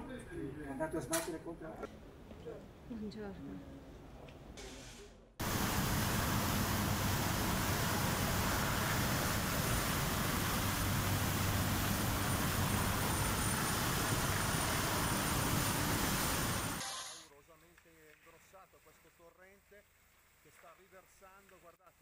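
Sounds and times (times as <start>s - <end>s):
floodwater rushing: 5.4s - 16.8s.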